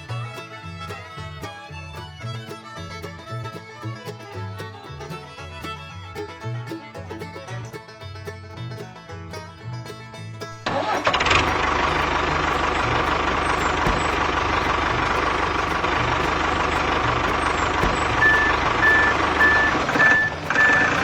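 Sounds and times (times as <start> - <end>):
diesel engine chugging: 0.0 - 21.0
reversing alarm beeping: 17.6 - 21.0.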